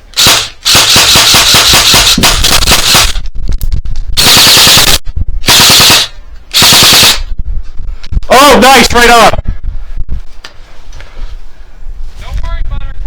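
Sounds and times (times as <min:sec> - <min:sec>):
airsoft guns firing full auto: 0:00.2 - 0:03.2.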